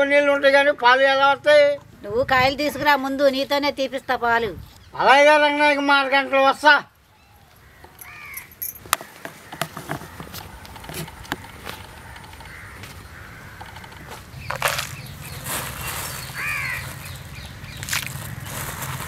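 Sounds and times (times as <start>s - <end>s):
bird calling: 6.9s - 19.0s.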